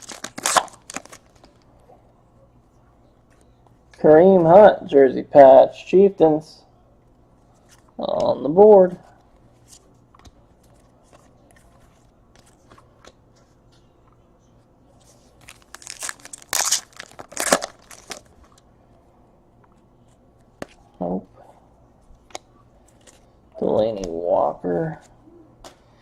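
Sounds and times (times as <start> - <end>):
plastic wrapper crinkling and tearing: 0.0 - 1.6, 15.4 - 18.5.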